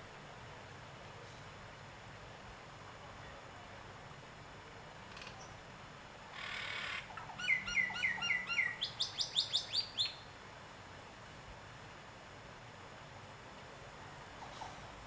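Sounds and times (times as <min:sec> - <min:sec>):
bird singing: 0:06.3 - 0:10.3.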